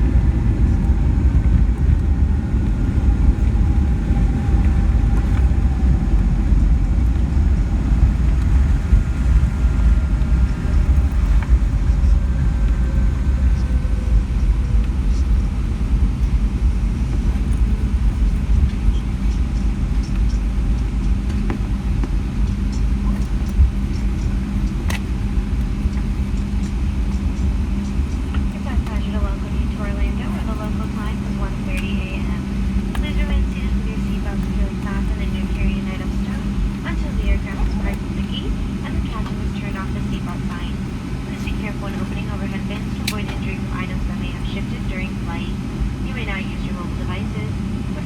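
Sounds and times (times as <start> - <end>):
low engine rumble: 0.0 - 48.0.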